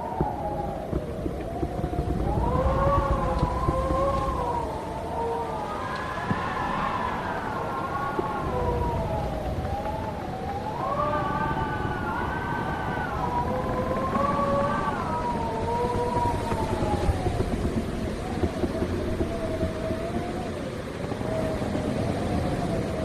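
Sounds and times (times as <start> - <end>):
low rumble of gusts: 0.0 - 23.0
wind whistling: 0.0 - 23.0.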